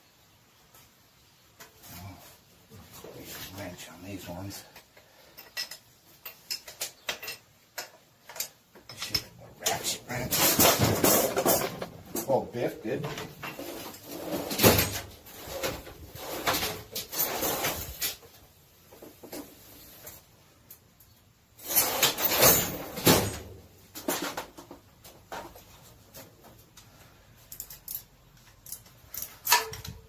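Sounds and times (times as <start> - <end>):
metal engine parts clanking: 5.3 - 12.3.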